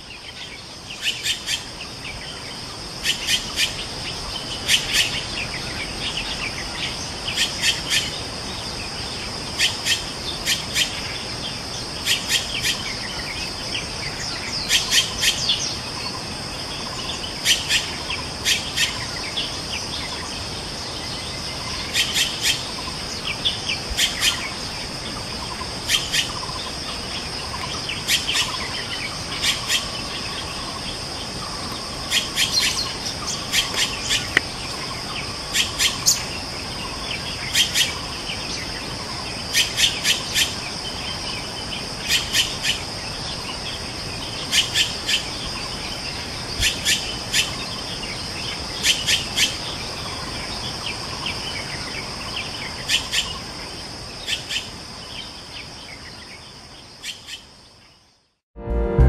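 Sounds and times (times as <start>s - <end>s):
high insect drone: 0.0s - 58.2s.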